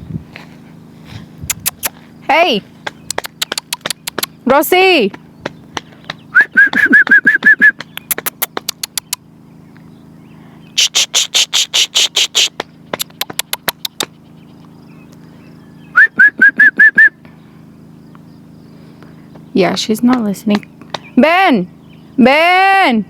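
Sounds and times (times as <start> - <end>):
kissing smacks: 1.4 - 2.0, 3.1 - 4.3, 6.6 - 9.2, 10.8 - 14.1
tongue clicks: 1.5 - 2.0, 3.1 - 4.4, 6.6 - 9.2, 10.8 - 14.1
rising whistled notes: 6.3 - 7.8, 15.9 - 17.2.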